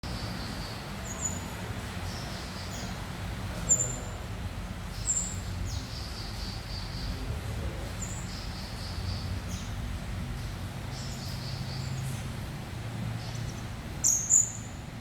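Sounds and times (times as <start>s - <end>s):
bird twittering high chirps: 0.1s - 3.0s, 3.6s - 4.2s, 4.9s - 7.3s, 8.0s - 12.3s, 13.2s - 14.9s.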